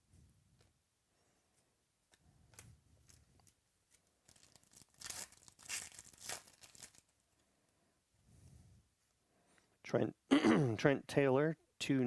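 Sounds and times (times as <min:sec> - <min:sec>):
wrapper handling ticks: 0:02.1 - 0:07.2
wrapper tearing and crackling: 0:02.5 - 0:07.2.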